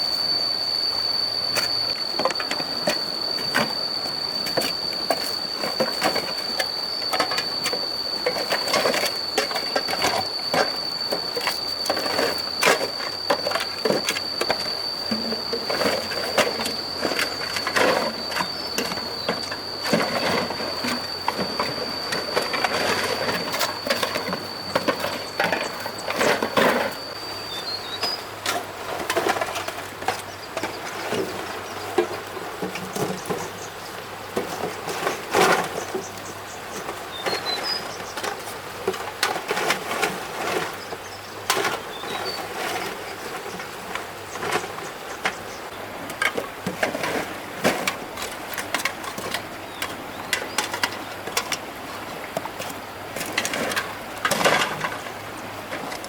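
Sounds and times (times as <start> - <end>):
steady high-pitched tone: 0.0 - 46.6
faint steady hum: 0.0 - 56.0
clattering of hard objects: 1.6 - 56.0.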